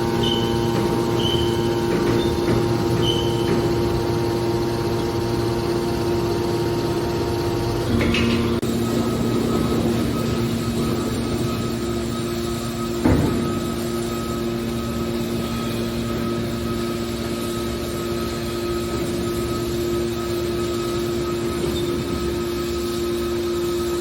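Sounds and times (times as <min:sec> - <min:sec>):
baling machine humming: 0:00.0 - 0:24.0.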